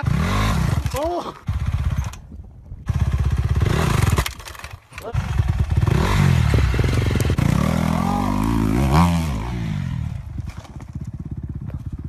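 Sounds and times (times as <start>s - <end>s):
motorcycle engine revving and idling: 0.0s - 12.0s.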